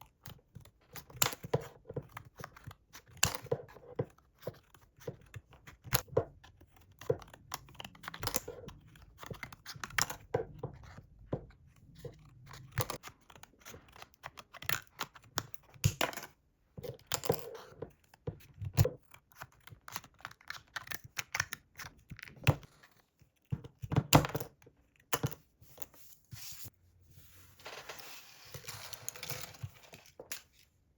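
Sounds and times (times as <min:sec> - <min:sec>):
paper or plastic crinkling: 0:26.4 - 0:30.6.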